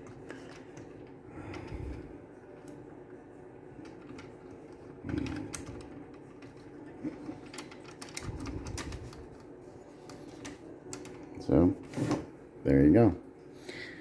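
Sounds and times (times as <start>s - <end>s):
plastic and metal parts clicking: 3.8s - 9.4s.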